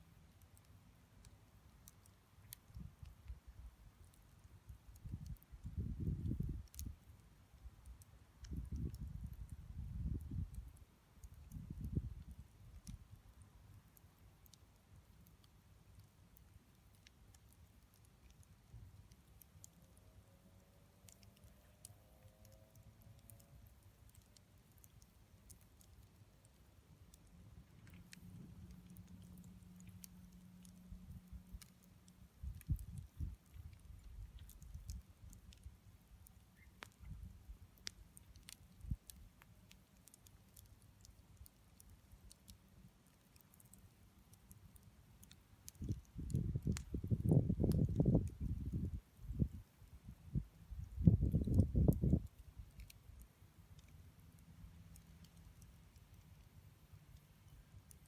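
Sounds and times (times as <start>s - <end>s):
campfire crackling: 0.0s - 58.0s
fire pops and clicks: 4.0s - 13.2s, 21.1s - 54.0s.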